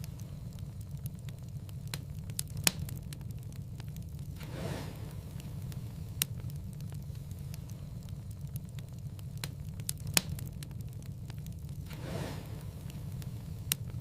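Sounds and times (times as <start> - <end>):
low rumble: 0.0 - 14.0
wood fire crackling: 0.0 - 14.0
soft whoosh: 4.4 - 6.2, 11.9 - 13.7.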